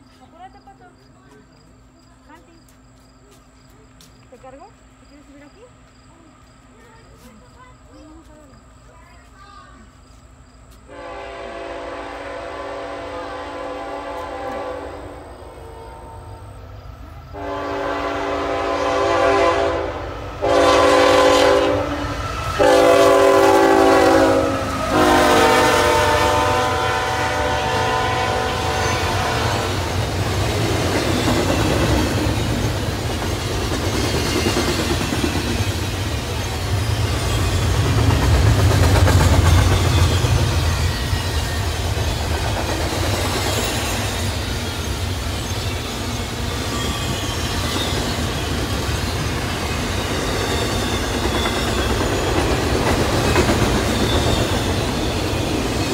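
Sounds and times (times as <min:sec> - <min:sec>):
locomotive air horn blasts: 0:10.9 - 0:16.6, 0:17.3 - 0:29.9
wheels clacking over rail joints: 0:29.7 - 0:55.9.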